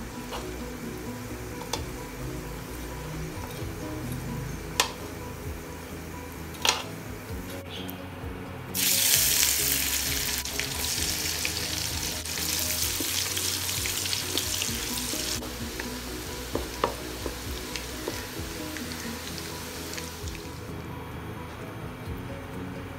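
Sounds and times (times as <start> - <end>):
food sizzling in hot oil: 8.8 - 20.6
wooden spatula stirring: 10.4 - 20.5.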